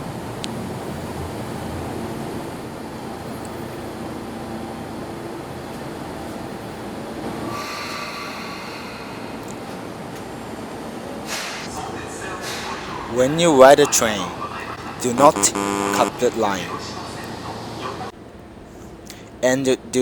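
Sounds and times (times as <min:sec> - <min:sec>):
higher tone: 0:15.2 - 0:16.6.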